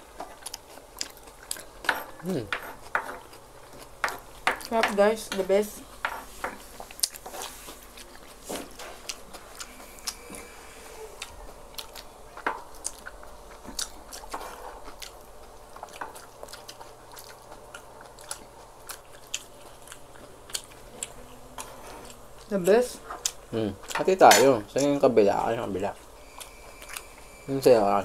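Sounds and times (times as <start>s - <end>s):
people chewing: 0.0s - 28.0s.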